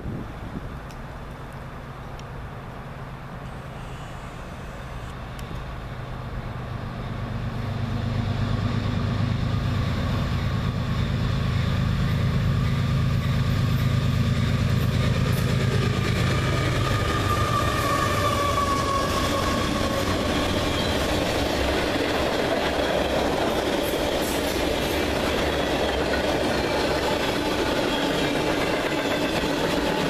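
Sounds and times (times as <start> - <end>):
diesel locomotive engine drone: 0.0 - 30.0
wheel squeal: 3.4 - 5.4, 16.5 - 21.7, 25.5 - 30.0
freight cars rolling: 13.0 - 30.0.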